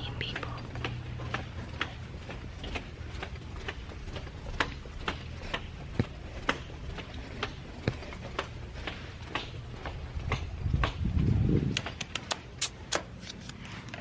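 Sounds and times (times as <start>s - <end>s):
footsteps walking: 0.0s - 14.0s
steady low hum: 0.0s - 14.0s.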